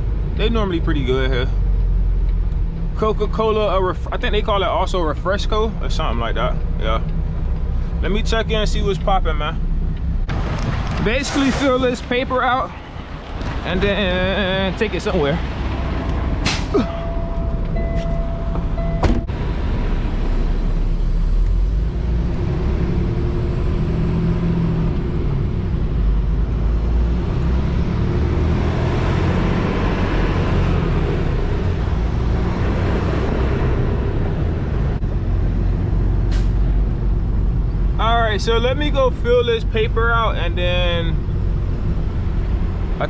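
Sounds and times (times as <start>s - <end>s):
diesel truck engine running: 12.1s - 43.0s
steady tone: 16.5s - 23.6s.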